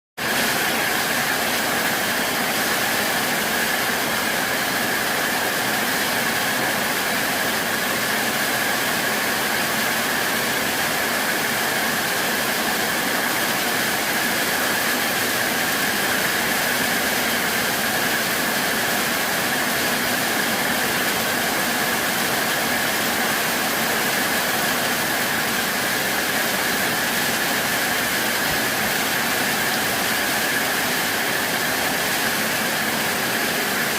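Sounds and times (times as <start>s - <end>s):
heavy rain pouring: 0.2s - 33.9s.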